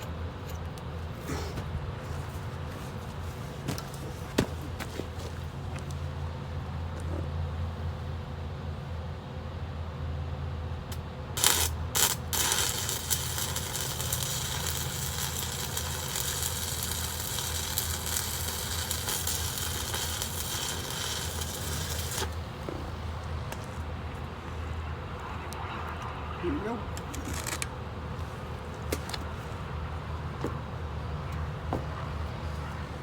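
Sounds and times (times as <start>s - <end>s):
welding arc crackling: 11.4s - 23.7s.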